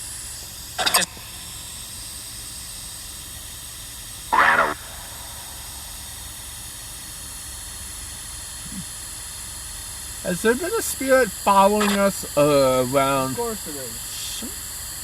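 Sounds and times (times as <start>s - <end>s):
steady hiss: 0.0s - 15.0s
short vocal sound: 4.3s - 6.0s, 8.6s - 8.9s.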